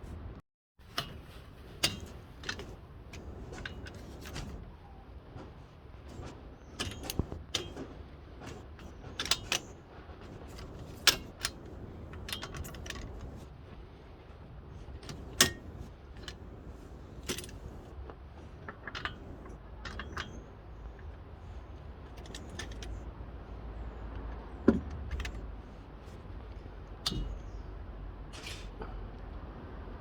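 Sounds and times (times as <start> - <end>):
sharp clicks and rattles: 0.8 - 4.7, 6.1 - 13.5, 14.8 - 21.2, 22.0 - 23.1.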